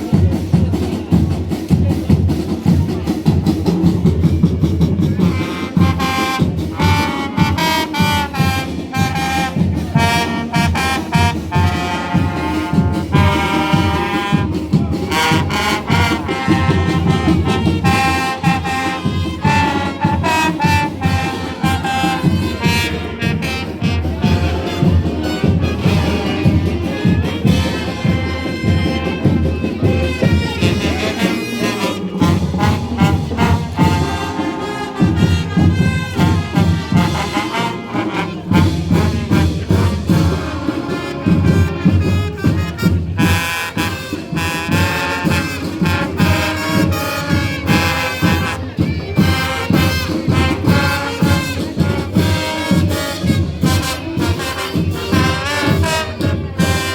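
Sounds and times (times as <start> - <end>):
driving drum beat: 0.0 - 56.9
brass playing a tune: 4.5 - 56.9.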